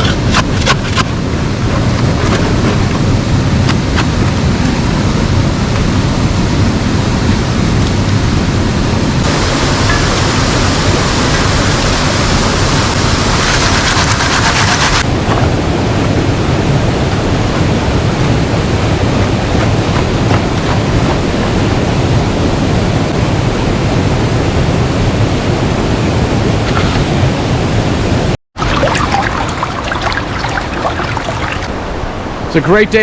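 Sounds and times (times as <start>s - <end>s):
brook water rushing: 9.2s - 15.1s, 28.6s - 33.0s.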